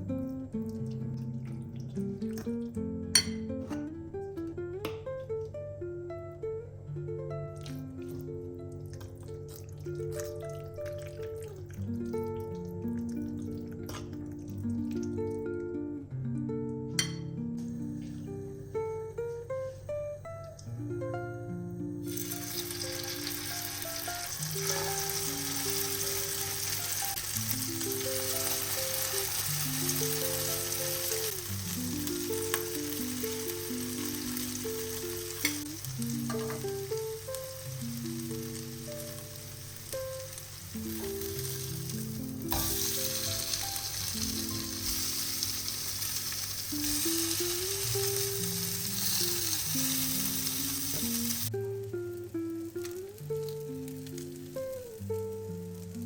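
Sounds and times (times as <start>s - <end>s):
soft background music: 0.0s - 56.0s
chicken sizzling in a pan: 22.0s - 56.0s.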